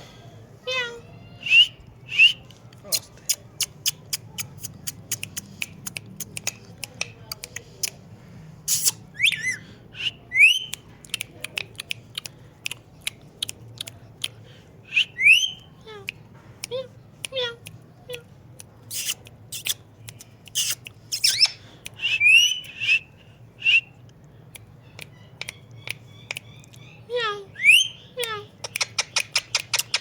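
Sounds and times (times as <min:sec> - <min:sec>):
parrot clicking: 0:02.7 - 0:08.1, 0:10.6 - 0:14.4, 0:28.2 - 0:30.0
parrot whistling upward: 0:27.6 - 0:28.0.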